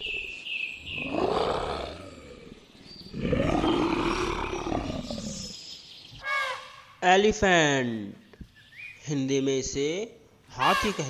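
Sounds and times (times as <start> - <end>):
lion roaring: 0.9 - 5.5.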